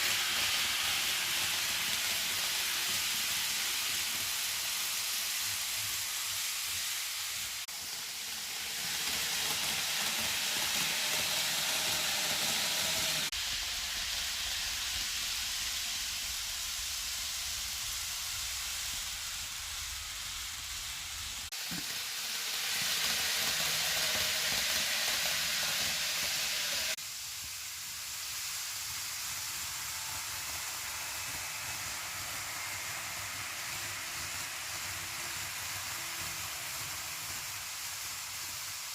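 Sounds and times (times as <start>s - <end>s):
model train rolling on track: 0.0s - 38.9s.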